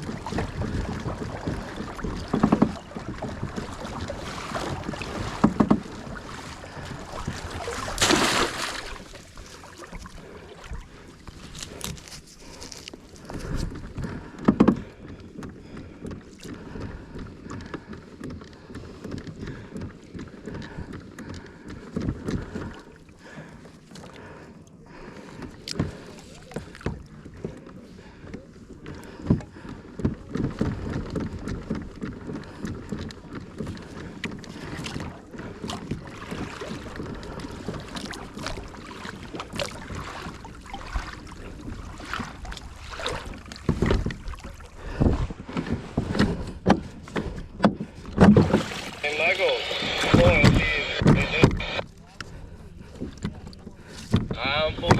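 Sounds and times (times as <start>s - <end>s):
water washing: 0.0s - 12.9s, 33.7s - 46.2s, 48.2s - 51.8s
paddling: 0.0s - 54.9s
knocks against kayak hull: 0.7s - 3.4s, 5.0s - 5.9s, 14.4s - 14.9s, 47.6s - 48.7s.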